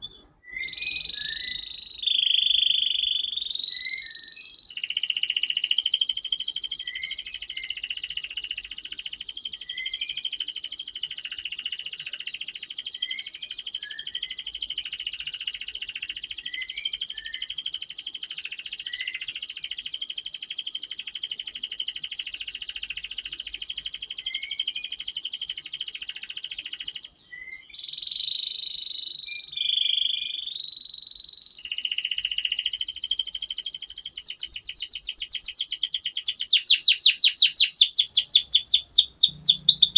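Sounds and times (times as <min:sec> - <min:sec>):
canary whistle notes: 0:00.0 - 0:04.7, 0:34.1 - 0:39.9
canary singing trills: 0:00.0 - 0:39.9.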